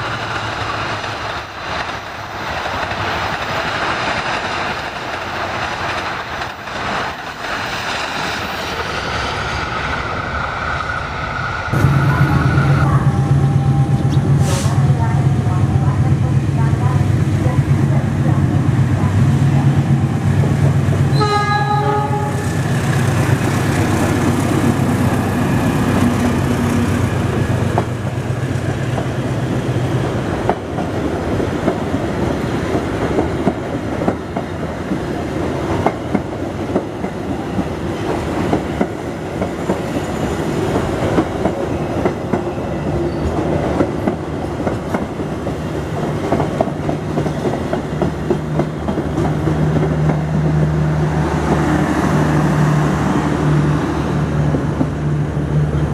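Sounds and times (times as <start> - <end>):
train wheels clacking over rail joints: 0.0 - 8.6, 22.8 - 42.6, 43.2 - 50.8
train horn blast: 21.1 - 22.6.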